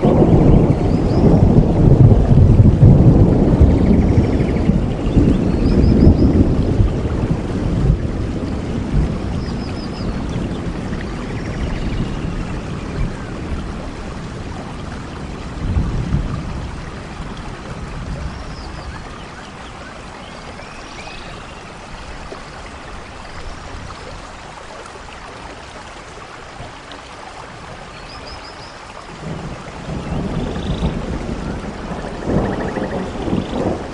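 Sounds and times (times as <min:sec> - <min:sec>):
thunder rumbling: 0:00.0 - 0:19.1, 0:29.1 - 0:33.9
steady rain falling: 0:00.0 - 0:33.9.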